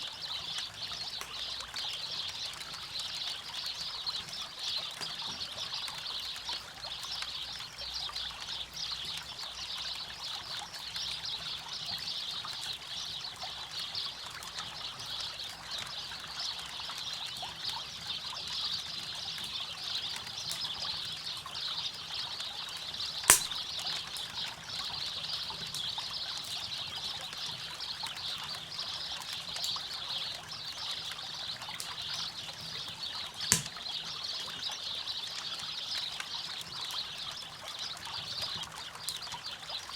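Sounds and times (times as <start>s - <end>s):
campfire crackling: 23.0s - 24.2s, 33.4s - 34.1s
loud pops from fire: 23.3s - 23.9s, 33.5s - 33.9s.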